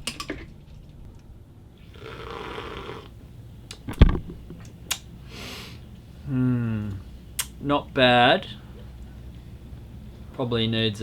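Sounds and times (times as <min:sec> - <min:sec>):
person slurping a drink: 0:01.9 - 0:03.1.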